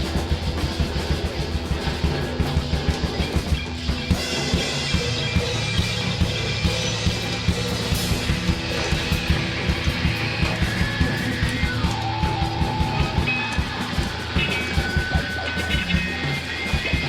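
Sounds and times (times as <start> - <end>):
pounding drum kit: 0.0 - 17.0.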